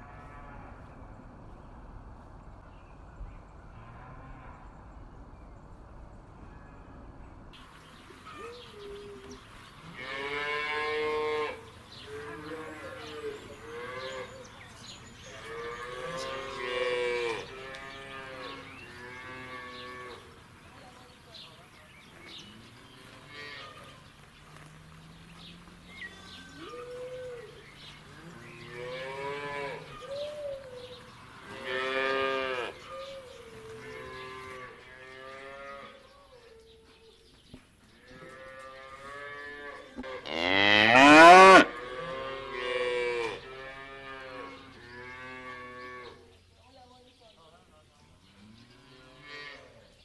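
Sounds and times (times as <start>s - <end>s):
cattle mooing: 15.3s - 20.2s, 28.1s - 30.0s, 38.4s - 46.1s.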